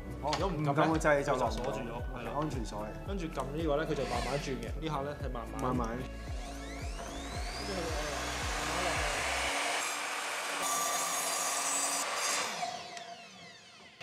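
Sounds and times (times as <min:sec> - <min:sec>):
saw blade cutting wood: 0:04.0 - 0:04.5, 0:06.2 - 0:14.0
mitre saw motor whine: 0:06.1 - 0:14.0.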